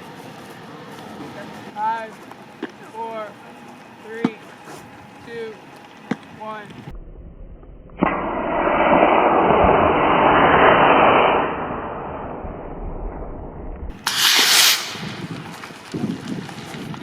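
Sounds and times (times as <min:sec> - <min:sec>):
rocket motor whoosh: 0:07.9 - 0:15.5
loud hissing burst: 0:08.0 - 0:12.5, 0:13.9 - 0:15.3.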